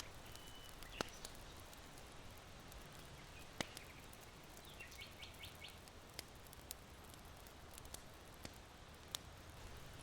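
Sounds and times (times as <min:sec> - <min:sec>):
small sharp pops: 0:00.0 - 0:01.4, 0:03.5 - 0:04.2, 0:06.1 - 0:09.3
charcoal fire crackling: 0:00.0 - 0:10.0
low steady background hush: 0:00.0 - 0:10.0.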